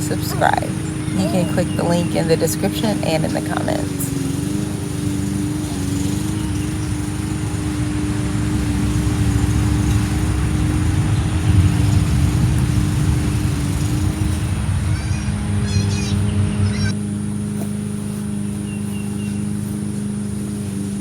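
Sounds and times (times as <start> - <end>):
small engine running: 0.0 - 21.0
low rumble: 6.9 - 17.0.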